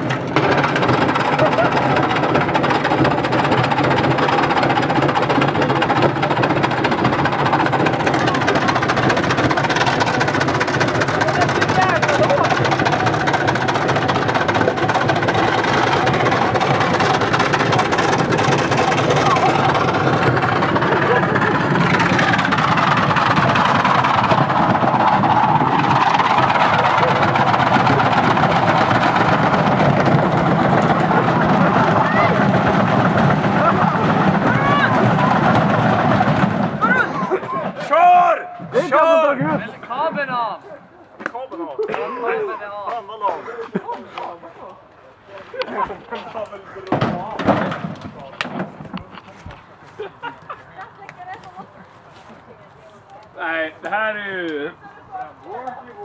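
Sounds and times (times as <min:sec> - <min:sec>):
washing machine spinning: 0:00.0 - 0:40.5.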